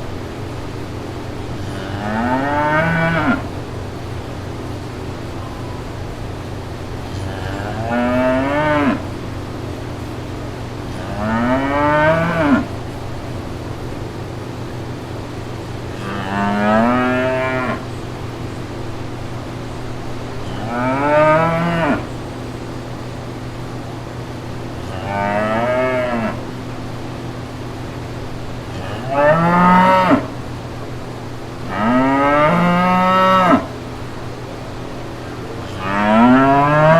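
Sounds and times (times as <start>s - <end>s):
steady low hum: 0.0s - 36.9s
cow mooing: 1.6s - 3.5s, 7.1s - 9.2s, 10.9s - 12.8s, 15.9s - 17.9s, 20.5s - 22.1s, 24.8s - 26.5s, 28.7s - 30.4s, 31.6s - 33.8s, 35.6s - 36.9s.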